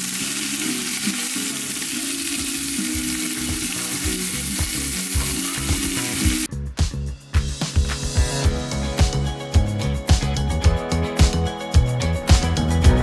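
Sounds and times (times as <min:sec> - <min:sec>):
fish sizzling in a pan: 0:00.0 - 0:06.5
background music: 0:00.0 - 0:13.0.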